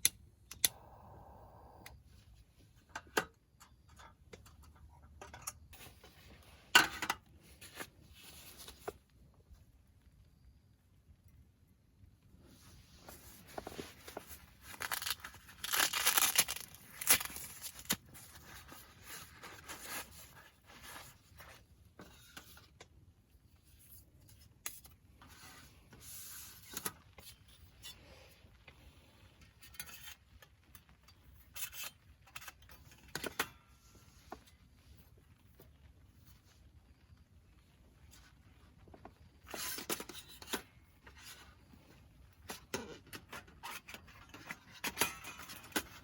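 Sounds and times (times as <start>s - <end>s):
rustling and tearing: 13.0s - 21.5s.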